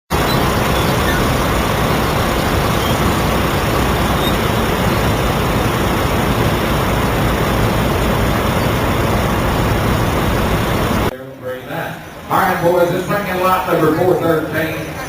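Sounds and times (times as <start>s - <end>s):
vehicle engine rumbling: 0.1s - 11.1s.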